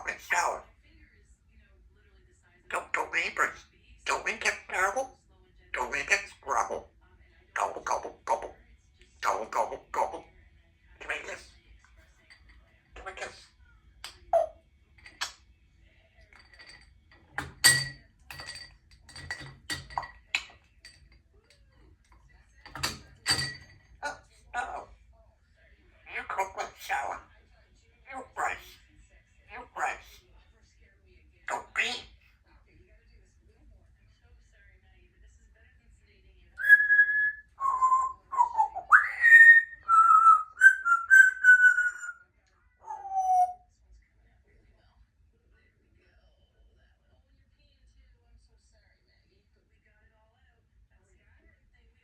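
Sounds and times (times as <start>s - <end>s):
parrot whistling: 36.6s - 42.2s, 42.8s - 43.6s.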